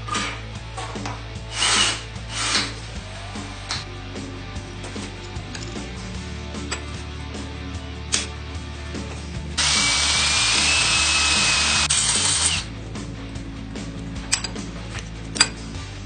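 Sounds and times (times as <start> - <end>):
background music: 0.0 - 16.0
handheld power tool running: 1.5 - 2.7, 9.6 - 12.7.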